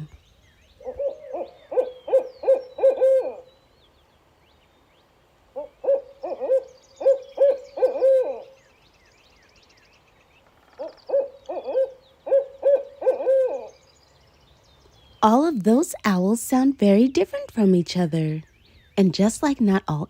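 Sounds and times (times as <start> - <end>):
owl hooting: 0.8 - 3.6, 5.6 - 8.7, 10.6 - 14.0.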